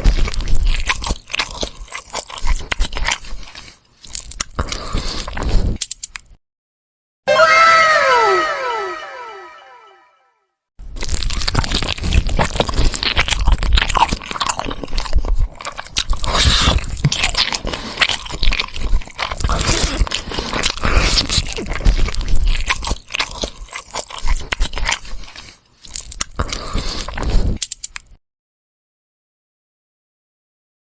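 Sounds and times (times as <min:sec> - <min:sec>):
chewing and crunching bones: 0:00.0 - 0:06.4, 0:10.8 - 0:28.2.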